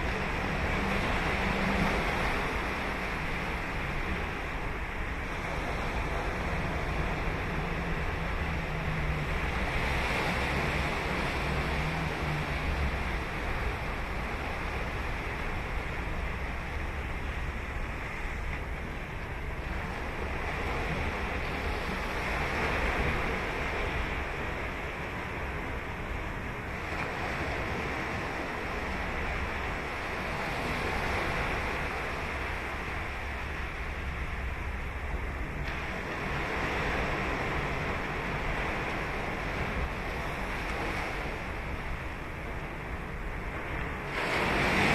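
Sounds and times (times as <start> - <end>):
ocean surf washing onto beach: 0.0 - 44.9
wind rumble on microphone: 0.0 - 44.9.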